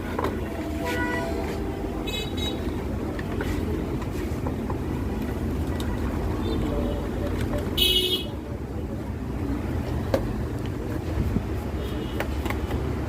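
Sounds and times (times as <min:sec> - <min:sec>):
street traffic rumble: 0:00.0 - 0:13.0
vehicle horn: 0:00.3 - 0:02.8, 0:07.8 - 0:08.4.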